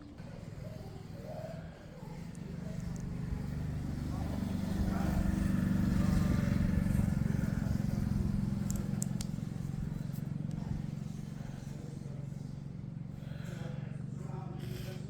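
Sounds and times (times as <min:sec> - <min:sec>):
vehicle engine passing: 0:00.2 - 0:13.1
light clicks: 0:08.6 - 0:09.7.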